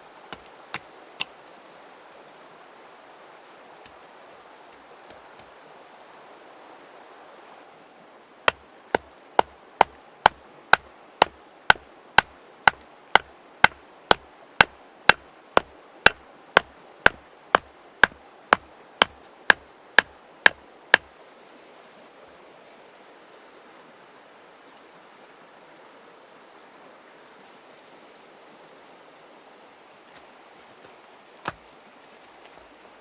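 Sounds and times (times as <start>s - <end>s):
river flowing: 0.0s - 32.2s
sharp knocks: 8.5s - 15.2s, 16.1s - 18.2s.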